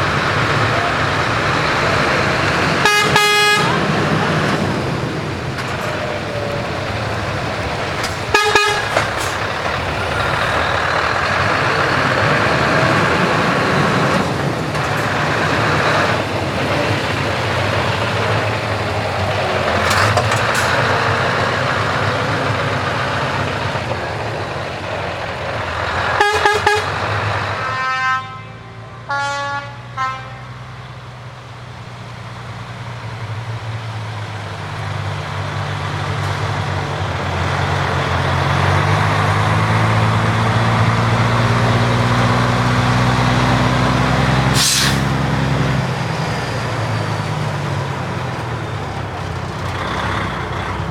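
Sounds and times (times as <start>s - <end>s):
heavy truck engines running: 0.0s - 50.9s
air horn blasts: 0.4s - 4.7s, 8.0s - 10.6s, 26.1s - 30.8s.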